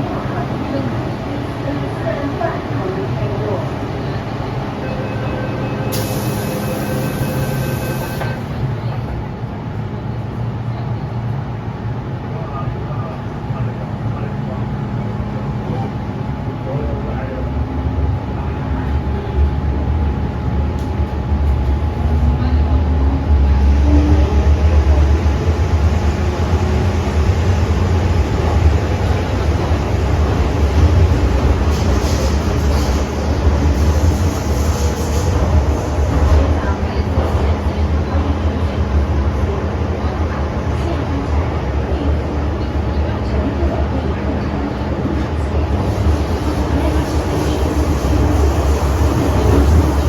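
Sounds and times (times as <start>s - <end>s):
train running with low rumble: 0.0s - 50.0s
hiss: 6.0s - 8.2s.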